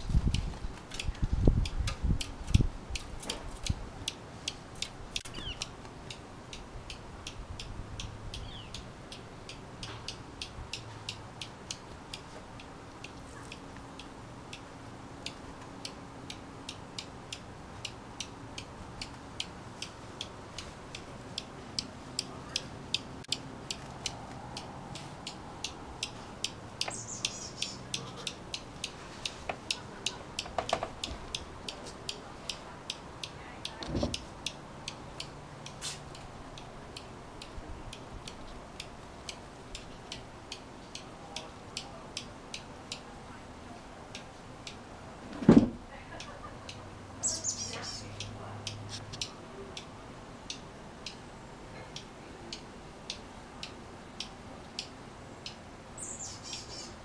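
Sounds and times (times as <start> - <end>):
bird alarm chips: 5.2 - 5.7, 26.8 - 28.1, 47.2 - 48.1, 56.0 - 57.0.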